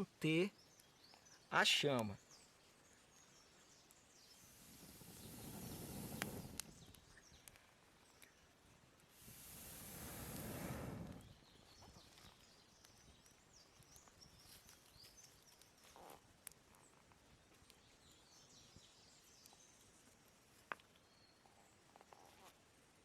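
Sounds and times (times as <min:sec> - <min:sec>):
faint bird chirps: 0:00.0 - 0:08.6, 0:21.0 - 0:22.5
rush of air: 0:04.4 - 0:07.0, 0:09.2 - 0:11.4.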